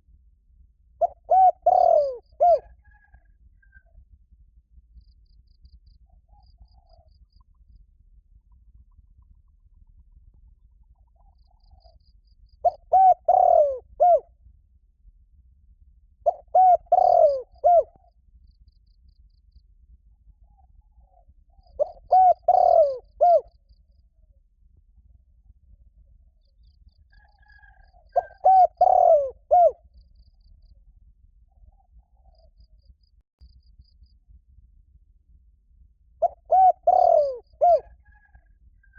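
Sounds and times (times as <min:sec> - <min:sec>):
dove cooing: 0:01.0 - 0:03.2, 0:12.6 - 0:14.3, 0:16.2 - 0:18.1, 0:21.0 - 0:23.5, 0:27.4 - 0:29.8, 0:36.2 - 0:38.5.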